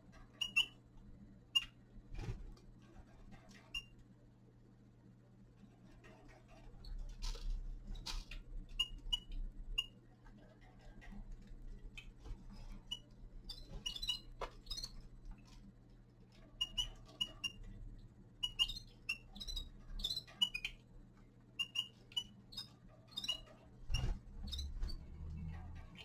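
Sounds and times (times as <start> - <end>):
finches chirping: 12.8 - 15.1, 16.6 - 17.7, 18.4 - 20.9, 21.6 - 25.1.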